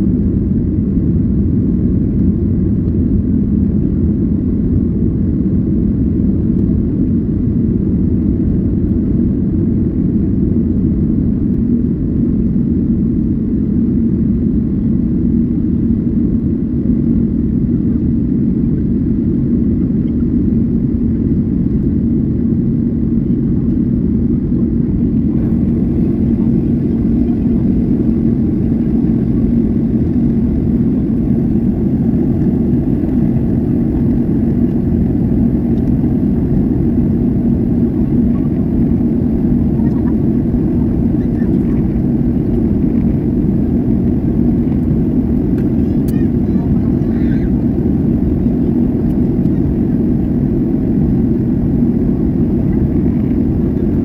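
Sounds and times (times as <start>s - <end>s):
wind and sea rumble: 0.0s - 54.0s.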